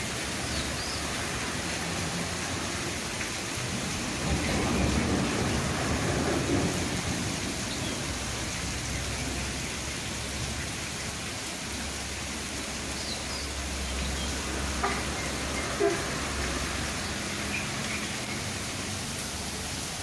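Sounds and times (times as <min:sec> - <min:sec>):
heavy rain pouring: 0:00.0 - 0:20.0
strong wind rumbling: 0:03.6 - 0:09.4.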